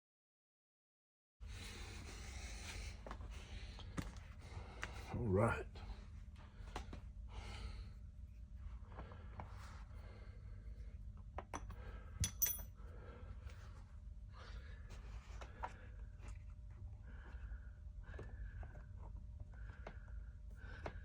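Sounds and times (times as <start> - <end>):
low steady hum: 1.5 - 21.0
sharp metallic clink: 12.2 - 12.7.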